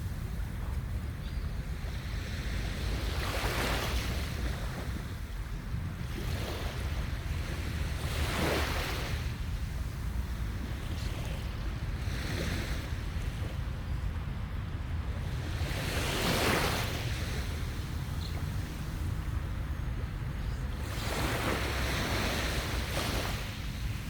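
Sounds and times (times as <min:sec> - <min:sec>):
wind rumble on microphone: 0:00.0 - 0:24.0
sea waves breaking on beach: 0:06.0 - 0:14.0, 0:15.0 - 0:24.0.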